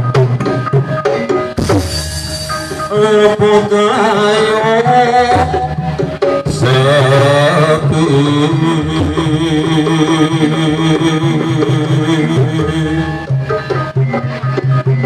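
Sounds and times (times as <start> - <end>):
hand drums: 0.0 - 15.0
wavering melodic line: 1.6 - 4.4.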